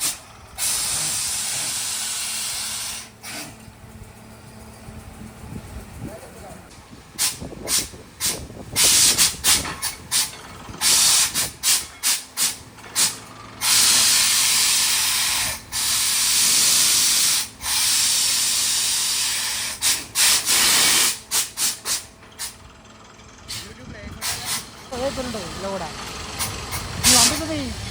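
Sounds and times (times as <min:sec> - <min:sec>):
compressed air hissing bursts: 0:00.0 - 0:03.6, 0:07.1 - 0:22.6, 0:23.5 - 0:25.4, 0:26.2 - 0:27.9
low engine hum: 0:00.0 - 0:27.9.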